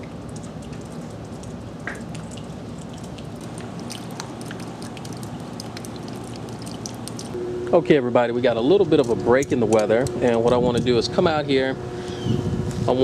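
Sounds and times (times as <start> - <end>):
drops dripping and tapping: 0.0 - 7.4.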